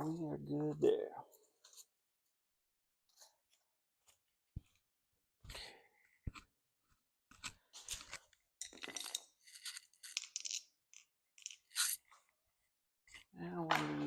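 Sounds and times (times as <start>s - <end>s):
crinkling and rustling: 6.3s - 12.5s.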